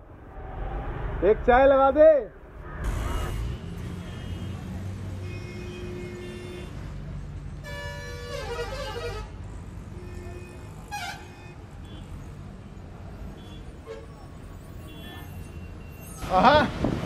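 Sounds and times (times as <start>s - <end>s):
street traffic rumble: 0.0s - 17.0s
vehicle horn: 2.8s - 6.9s, 7.6s - 12.1s.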